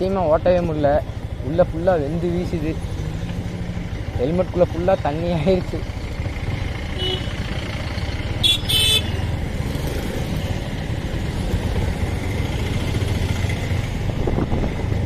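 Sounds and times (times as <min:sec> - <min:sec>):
motorcycle engine running: 0:00.0 - 0:15.0
vehicle horn honking: 0:07.0 - 0:07.4, 0:08.4 - 0:09.2.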